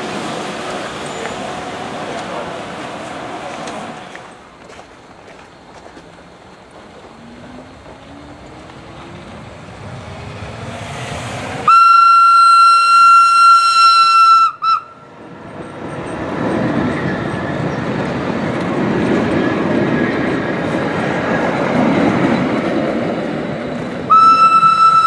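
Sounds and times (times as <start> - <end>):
electric railcar motor whine: 0.0 - 22.6, 23.2 - 25.0
train wheels rumbling on rails: 0.0 - 25.0
train horn: 11.6 - 15.1, 24.1 - 25.0.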